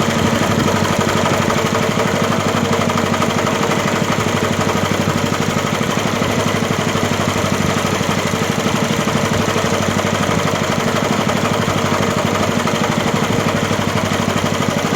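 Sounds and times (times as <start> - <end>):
grass chopper engine throbbing: 0.0 - 14.9.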